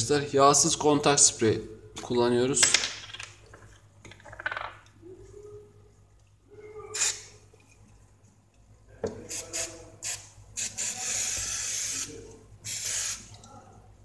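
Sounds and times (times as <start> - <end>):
aerosol spray hissing: 12.7 - 13.3.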